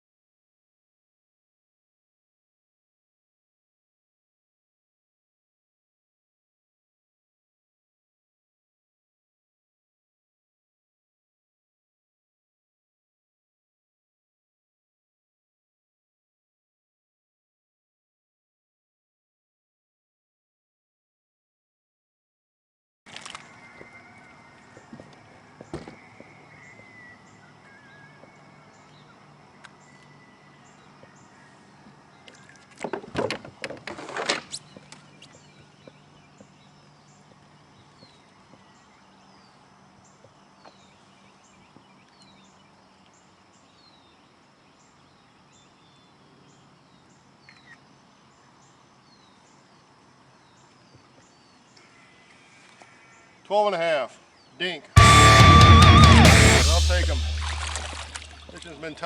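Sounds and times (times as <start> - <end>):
birds chirping: 34.5 - 59.0.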